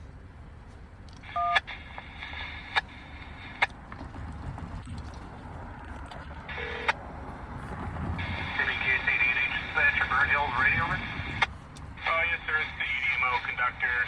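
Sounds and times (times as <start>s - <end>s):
radio open-channel hiss: 1.2s - 3.7s, 8.2s - 14.0s
low rumble: 1.7s - 14.0s.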